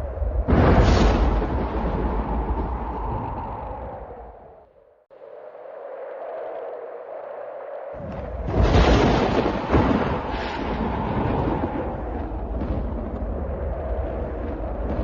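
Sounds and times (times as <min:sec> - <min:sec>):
thunder crack and rumble: 0:00.0 - 0:04.5, 0:08.0 - 0:15.0
storm wind: 0:00.0 - 0:15.0.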